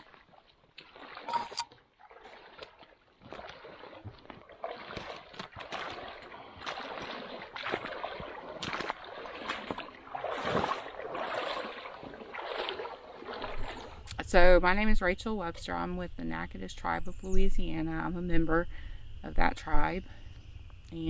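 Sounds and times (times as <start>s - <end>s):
water sloshing and splashing: 0.0s - 16.0s.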